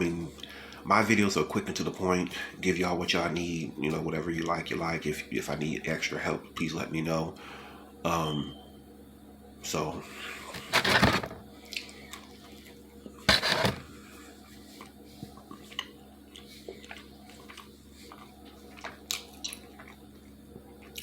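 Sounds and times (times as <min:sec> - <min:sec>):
chewing food: 0:15.5 - 0:21.0.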